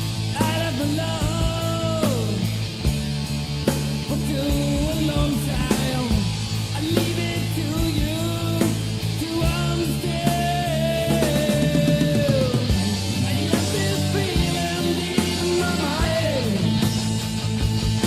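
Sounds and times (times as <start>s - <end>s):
heavy metal band playing: 0.0s - 18.0s.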